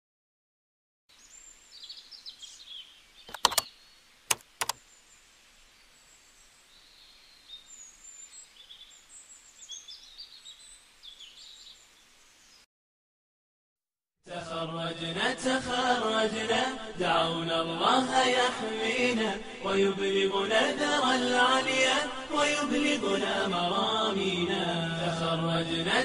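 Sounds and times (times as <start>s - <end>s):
birds chirping: 1.1s - 12.6s
faint hiss: 1.1s - 12.7s
sharp clicks: 3.3s - 3.7s, 4.3s - 4.8s.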